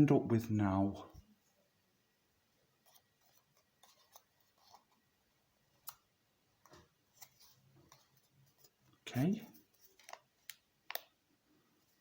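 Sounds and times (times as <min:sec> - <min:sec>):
paper crinkling and creasing: 0:02.8 - 0:05.0, 0:07.1 - 0:11.0.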